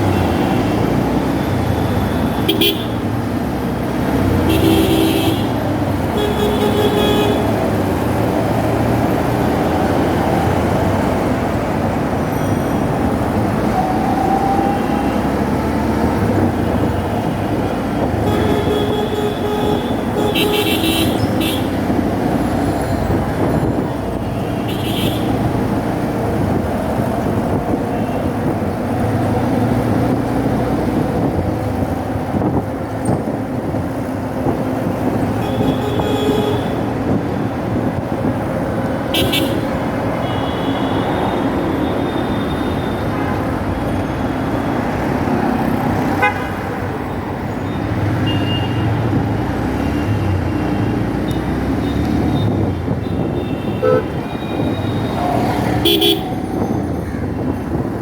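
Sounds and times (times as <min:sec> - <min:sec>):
traffic engines rumbling: 0:00.0 - 0:58.0
vehicle horns tooting: 0:01.8 - 0:03.2, 0:04.4 - 0:07.7, 0:18.0 - 0:21.9, 0:24.2 - 0:25.5, 0:35.3 - 0:37.1, 0:39.1 - 0:43.5, 0:46.0 - 0:47.0, 0:48.2 - 0:49.1, 0:51.8 - 0:56.4.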